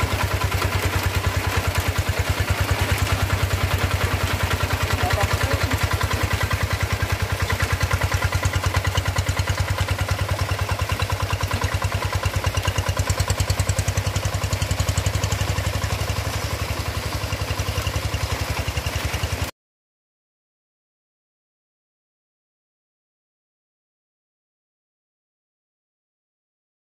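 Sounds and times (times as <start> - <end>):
tractor engine running: 0.0 - 19.5.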